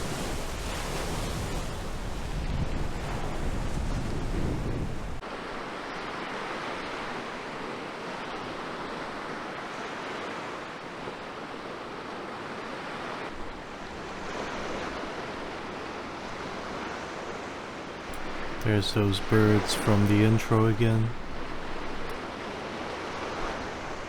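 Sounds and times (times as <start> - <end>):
wind buffeting microphone: 0.0 - 5.2
surf washing onto beach: 0.0 - 24.0.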